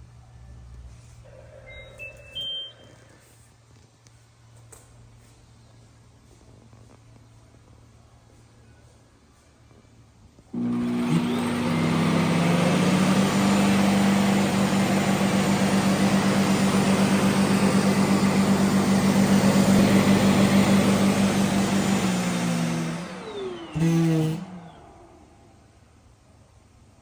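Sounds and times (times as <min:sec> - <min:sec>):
vacuum suction motor humming: 0:10.5 - 0:25.7
falling motor whine: 0:10.6 - 0:25.8.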